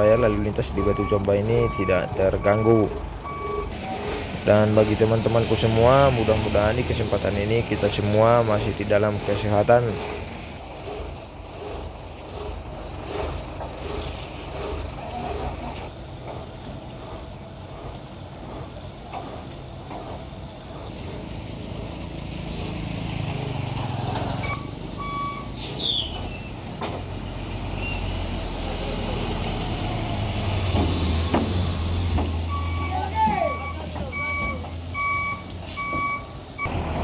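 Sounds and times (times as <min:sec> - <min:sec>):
diesel truck engines running: 0:00.0 - 0:37.0
reversing beeps: 0:00.1 - 0:04.1, 0:24.4 - 0:25.6, 0:32.5 - 0:36.8
brief hiss: 0:25.5 - 0:26.0.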